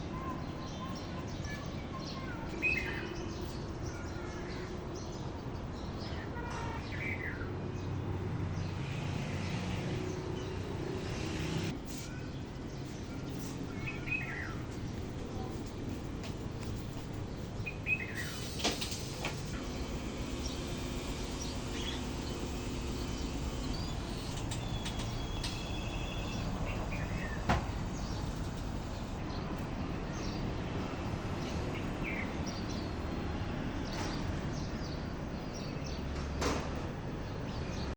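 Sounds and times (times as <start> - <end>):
birds chirping: 0.0 - 36.6.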